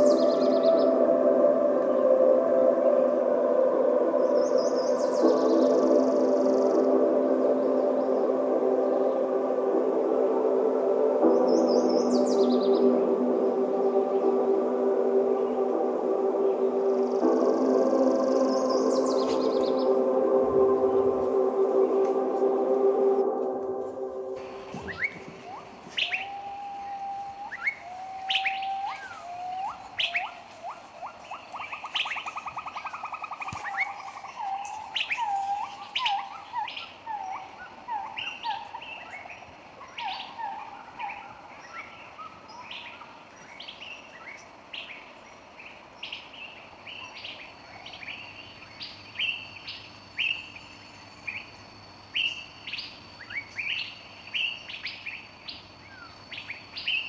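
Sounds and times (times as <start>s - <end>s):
lower whistled bird calls: 24.3s - 57.0s
rapid bird trill: 24.4s - 57.0s.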